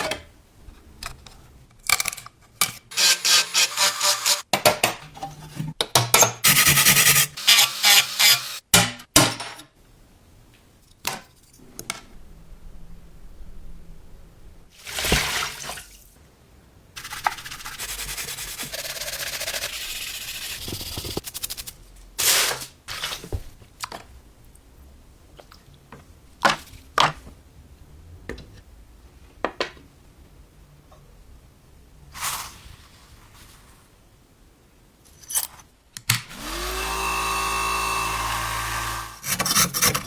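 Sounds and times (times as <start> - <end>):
scraping on metal parts: 2.9 - 4.4.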